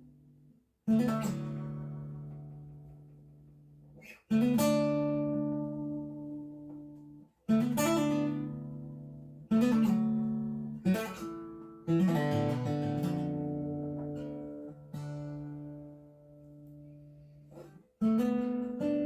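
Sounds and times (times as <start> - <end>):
acoustic guitar strums: 3.9 - 19.0.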